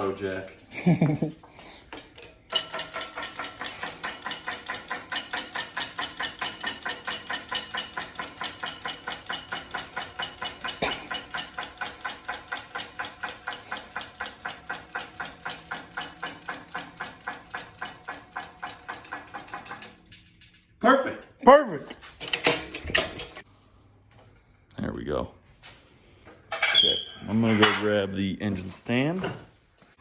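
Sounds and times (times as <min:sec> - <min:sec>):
mechanism clicking rapidly: 0:02.5 - 0:20.0.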